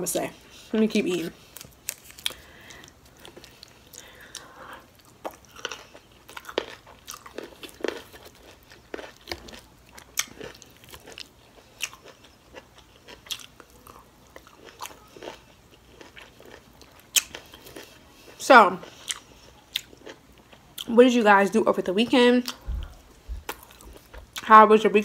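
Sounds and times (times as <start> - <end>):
person chewing with mouth clicks: 1.5 - 17.9, 18.8 - 20.9.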